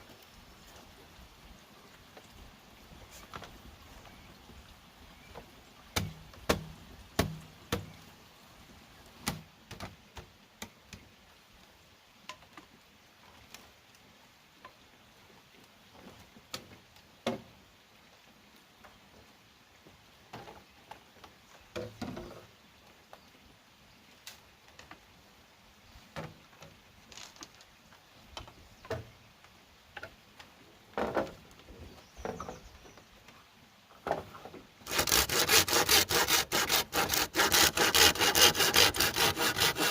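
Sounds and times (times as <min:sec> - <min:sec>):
bamboo knocks and taps: 0:05.9 - 0:08.0.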